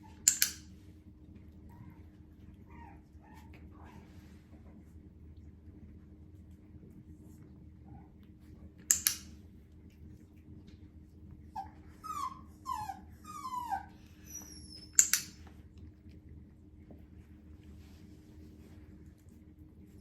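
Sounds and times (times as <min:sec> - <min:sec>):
puppy whining: 0:01.6 - 0:04.2, 0:11.4 - 0:15.5.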